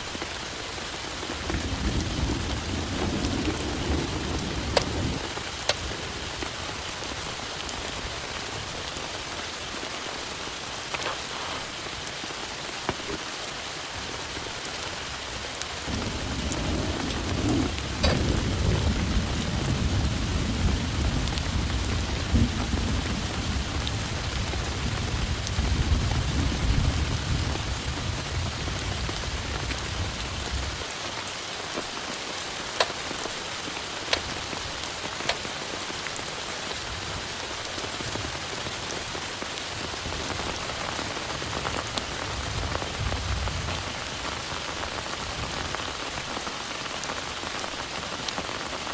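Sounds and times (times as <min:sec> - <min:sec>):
heavy rain falling: 0:00.0 - 0:48.9
raindrops ticking: 0:00.0 - 0:48.9
thunder rumbling: 0:01.1 - 0:07.3, 0:15.7 - 0:30.8.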